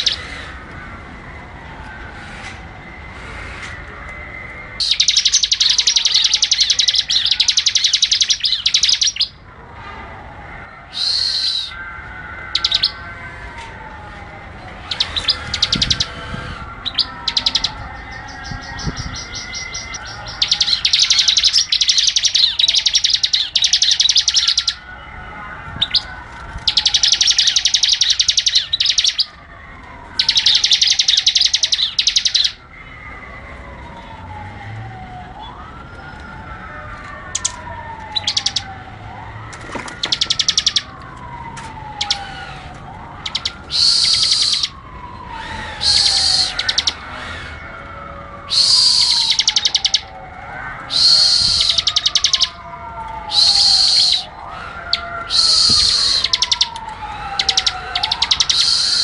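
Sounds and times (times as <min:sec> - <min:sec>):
bird rapid trilling song: 0:04.8 - 0:09.4, 0:14.9 - 0:24.8, 0:25.8 - 0:29.3, 0:30.2 - 0:32.6, 0:38.2 - 0:38.7, 0:40.0 - 0:40.9, 0:48.5 - 0:50.1, 0:55.3 - 0:56.7
falling whistle: 0:10.9 - 0:11.8, 0:43.2 - 0:47.0, 0:48.5 - 0:50.1, 0:50.9 - 0:52.6, 0:53.3 - 0:54.4, 0:55.2 - 0:56.8, 0:57.4 - 0:59.0.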